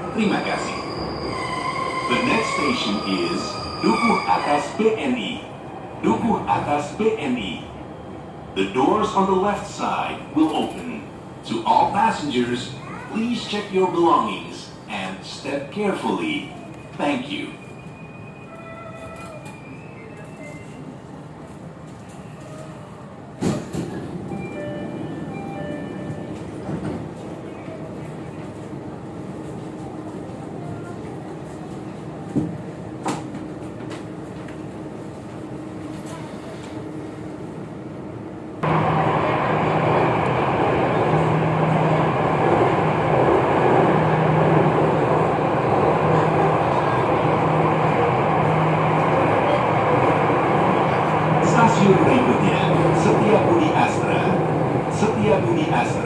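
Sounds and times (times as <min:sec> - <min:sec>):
train low rumble: 0:18.4 - 0:56.0.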